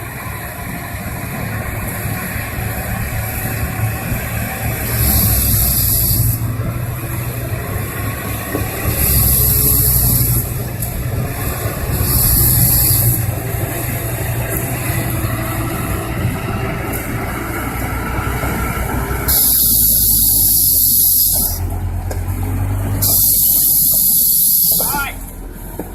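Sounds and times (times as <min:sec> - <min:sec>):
heavy vehicle engine running: 0:00.0 - 0:25.9
bursts of hiss: 0:19.3 - 0:21.6, 0:23.0 - 0:25.2.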